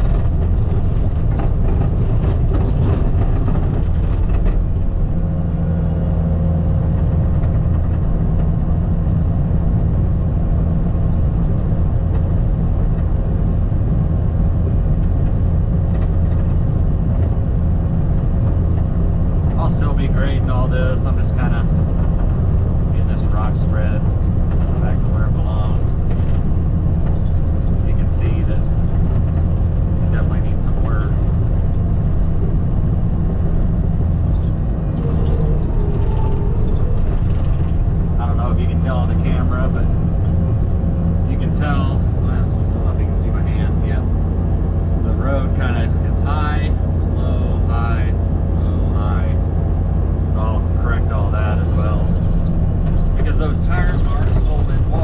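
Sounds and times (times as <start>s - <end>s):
engine droning under load: 0.0s - 55.0s
rising and falling whine: 32.4s - 42.7s.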